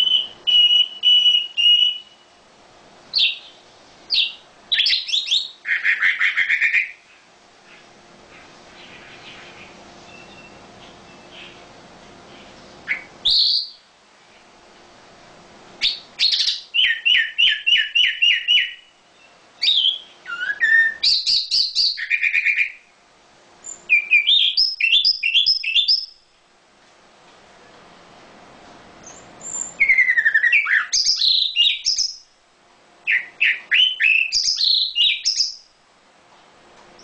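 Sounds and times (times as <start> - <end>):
bird chirping: 0.0 - 2.3, 3.1 - 11.7, 12.3 - 14.5, 15.8 - 22.9, 23.6 - 26.2, 29.0 - 32.3, 33.0 - 35.7.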